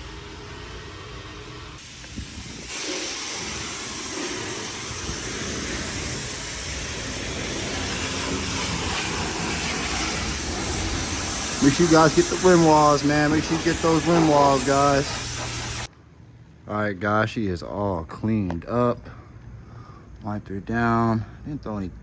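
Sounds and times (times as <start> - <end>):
pressure wand spraying water: 1.8 - 15.9.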